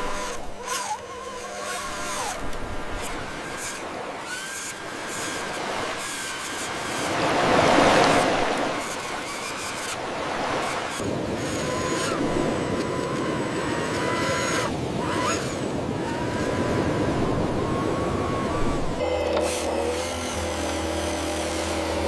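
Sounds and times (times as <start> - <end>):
short whining tones: 0.0 - 7.1
small vehicle motors: 0.0 - 22.0.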